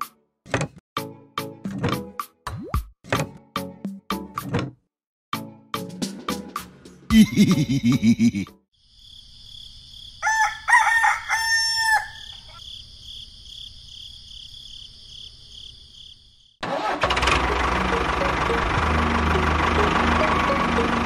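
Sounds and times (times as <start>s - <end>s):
rooster crowing: 10.2s - 12.6s
engine running loudly: 16.7s - 21.0s.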